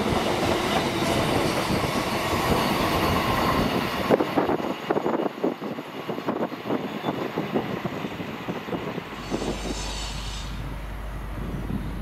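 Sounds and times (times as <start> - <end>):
train low rumble: 0.0 - 12.0
high hiss: 9.1 - 10.6.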